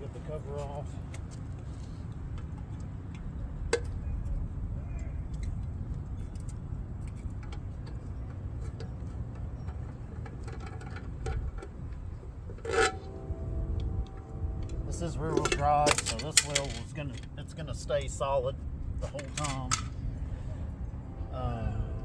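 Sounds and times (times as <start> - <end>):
steady low rumble: 11.2 - 22.0
short metal clatter: 14.6 - 17.3
metal clicks of hand tools: 15.4 - 17.3, 19.1 - 19.9.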